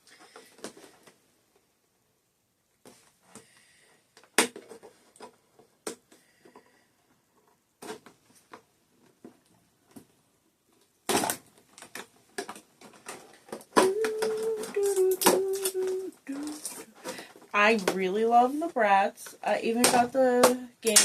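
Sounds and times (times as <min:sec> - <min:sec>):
plastic and cardboard clicks: 0:11.1 - 0:17.2.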